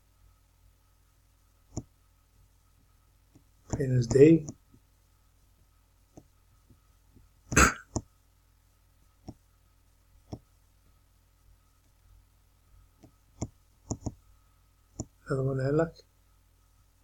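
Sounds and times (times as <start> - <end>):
person clearing throat: 7.5 - 8.0.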